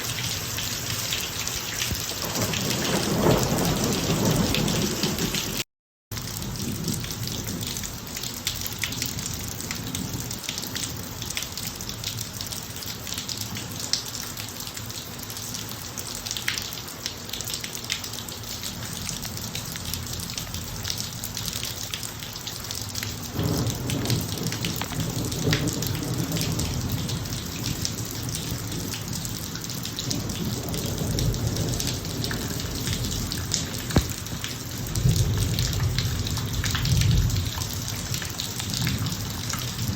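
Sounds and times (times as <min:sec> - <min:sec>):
rain on a driveway: 0:00.0 - 0:39.9
thunder rumble: 0:02.0 - 0:05.6, 0:23.3 - 0:29.0, 0:30.0 - 0:38.2.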